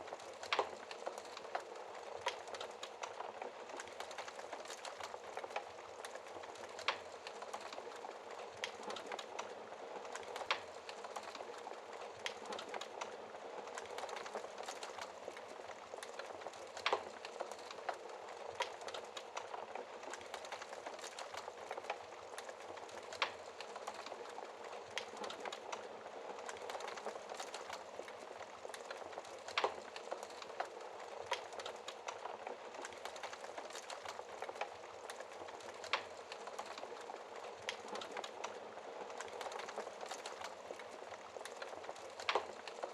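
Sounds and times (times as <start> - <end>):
logs crackling and popping: 0.0 - 42.9
wood fire hissing: 0.0 - 42.9.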